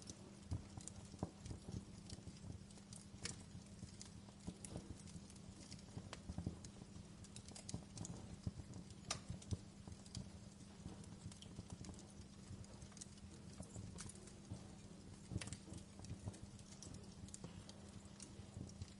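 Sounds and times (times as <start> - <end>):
fire crackling and popping: 0.0 - 18.9
low fire rumble: 0.0 - 18.9.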